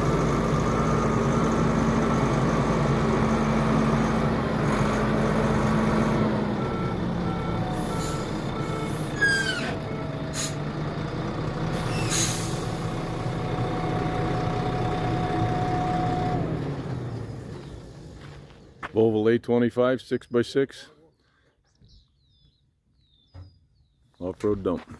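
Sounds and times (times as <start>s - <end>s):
diesel truck engine running: 0.0s - 18.9s
reversing alarm beeps: 6.6s - 10.2s
air brake hisses: 10.3s - 10.6s, 11.8s - 12.8s.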